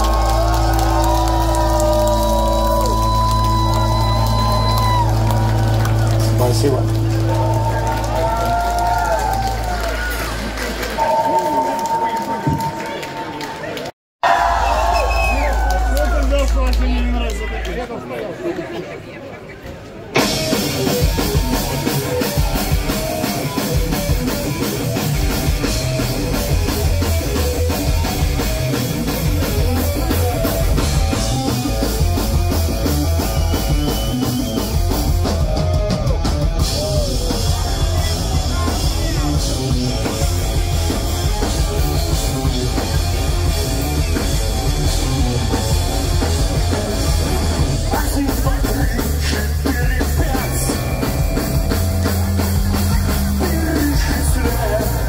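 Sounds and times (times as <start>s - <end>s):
live pop-punk band playing: 0.0s - 11.3s, 20.1s - 55.0s.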